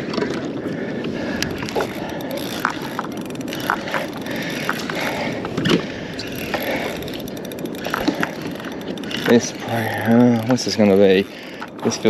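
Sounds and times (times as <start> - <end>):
paddle knocks and clicks: 1.4 - 9.5.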